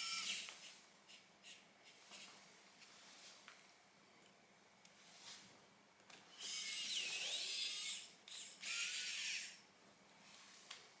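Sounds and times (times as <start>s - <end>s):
electric screwdriver whirring: 6.4s - 9.6s.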